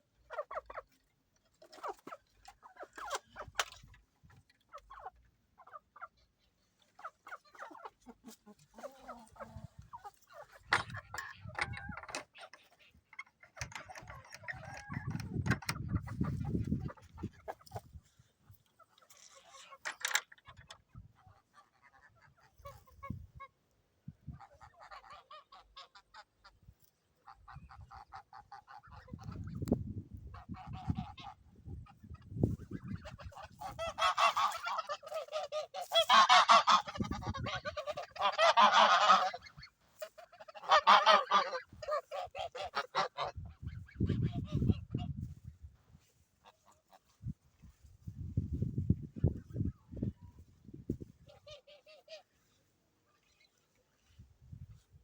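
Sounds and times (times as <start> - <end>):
geese honking: 7.0 - 23.6, 24.4 - 45.4, 46.0 - 47.9, 51.2 - 54.1.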